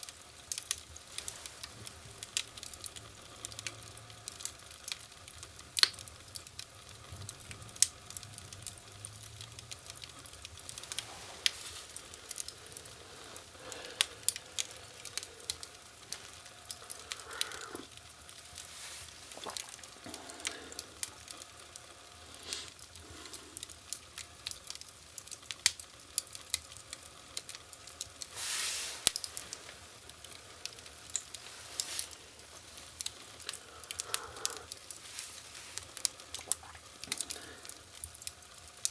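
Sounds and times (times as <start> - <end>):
wood fire crackling and popping: 0.0 - 38.9
brief hiss: 28.3 - 29.2.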